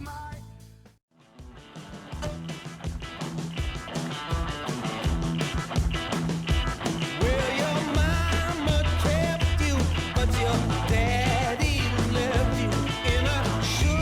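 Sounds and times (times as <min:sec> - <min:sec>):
drums: 0:00.0 - 0:14.0
rock guitar: 0:01.2 - 0:14.0
person singing: 0:07.2 - 0:14.0
heavy bass line: 0:08.0 - 0:14.0.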